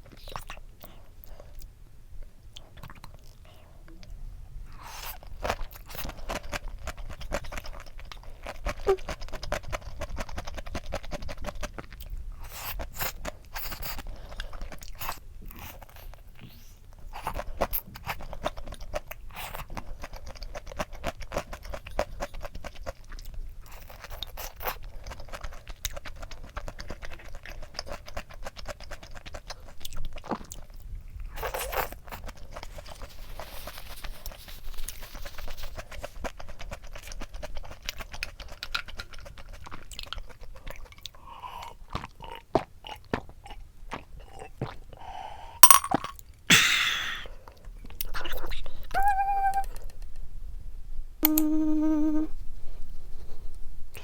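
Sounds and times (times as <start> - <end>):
chewing crunchy food: 0.0 - 45.2.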